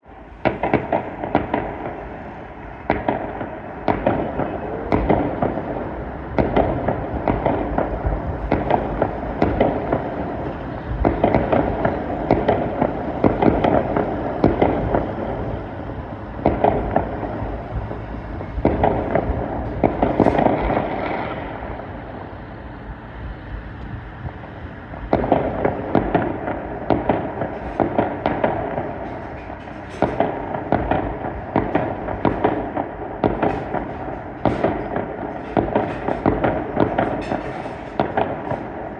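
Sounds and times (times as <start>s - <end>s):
fireworks bangs and crackling: 0.1s - 22.7s, 23.9s - 38.9s.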